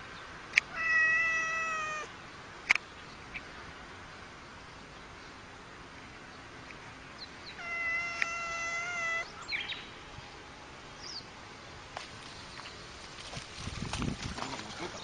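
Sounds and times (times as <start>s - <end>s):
cat yowling: 0.7s - 2.1s, 7.6s - 9.3s.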